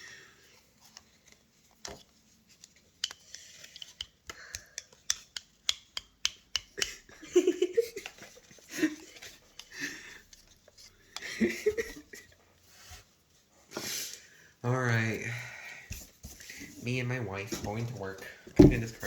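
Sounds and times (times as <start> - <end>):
voice: 16.8 - 19.0.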